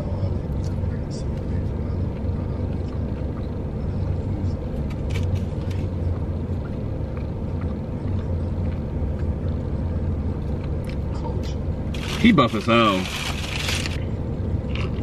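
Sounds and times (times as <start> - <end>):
car engine idling: 0.0 - 15.0
chewing and food handling clicks: 4.8 - 11.6.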